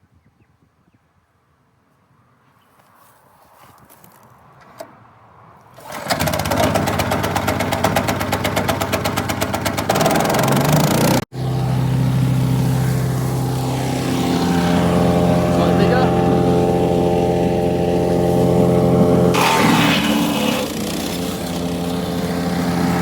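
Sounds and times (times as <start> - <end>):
petrol engine running: 5.8 - 23.0.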